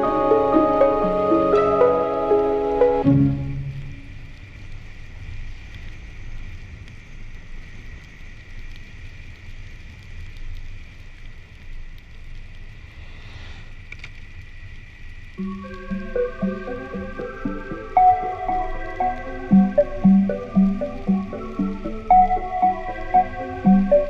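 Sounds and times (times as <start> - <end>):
faint high whine: 0.0 - 5.4, 14.5 - 24.0.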